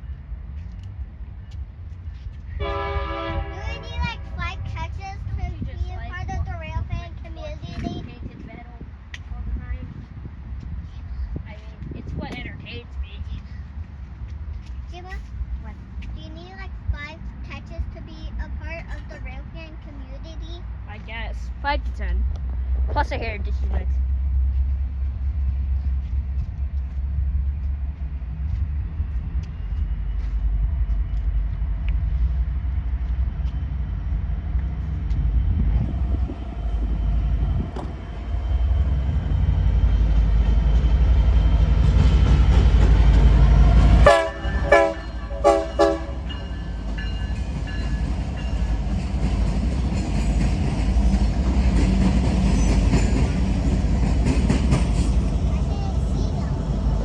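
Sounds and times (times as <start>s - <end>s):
train air horn blasts: 2.6s - 3.8s, 44.0s - 46.4s
locomotive rumbling past: 20.6s - 57.0s.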